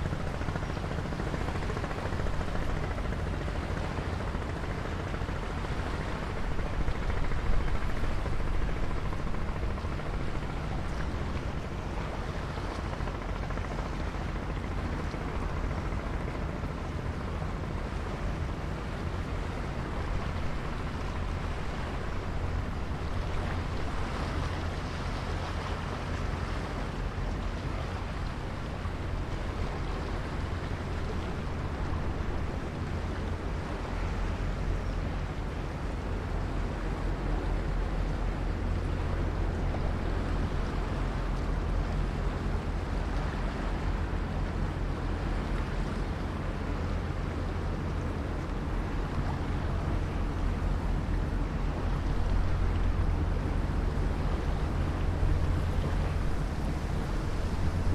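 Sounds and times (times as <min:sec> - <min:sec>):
wind blowing over microphone: 0:48.6 - 0:57.9.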